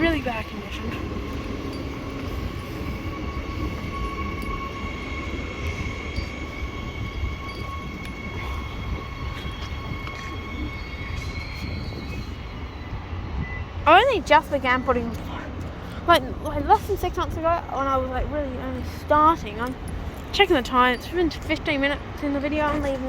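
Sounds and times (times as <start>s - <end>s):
high-pitched tones: 0.0s - 15.3s
electric train rumble: 0.0s - 23.0s.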